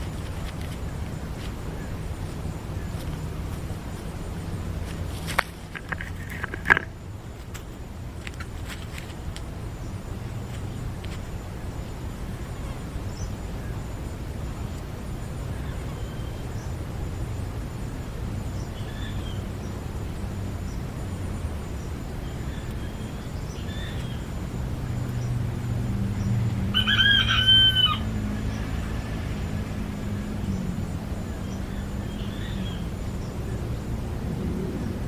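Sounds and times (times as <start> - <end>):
steady low hum: 0.0 - 26.9, 27.6 - 35.0
rooster crowing: 26.6 - 29.6.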